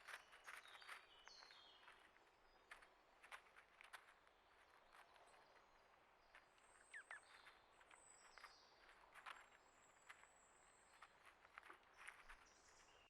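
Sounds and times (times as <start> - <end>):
bird chirps: 6.8 - 8.6.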